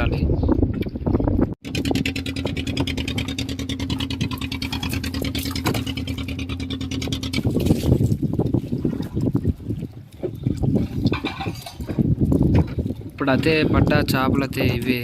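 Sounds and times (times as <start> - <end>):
boat engine running: 1.3 - 15.0.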